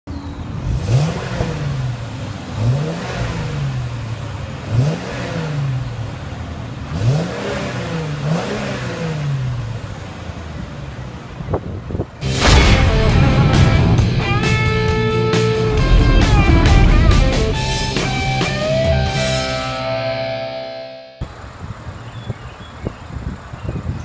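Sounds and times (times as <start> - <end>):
car engine revving: 0.1 - 20.3
loud guitar music: 12.2 - 21.2.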